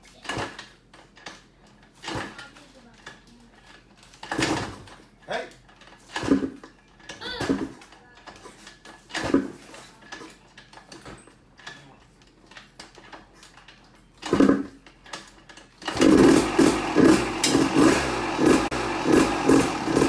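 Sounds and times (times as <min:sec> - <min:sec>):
dirt bike kick-starting: 0:01.9 - 0:03.2, 0:04.1 - 0:05.1, 0:05.8 - 0:06.7, 0:14.2 - 0:14.8, 0:15.6 - 0:20.0
two-stroke dirt bike engine running: 0:15.8 - 0:20.0.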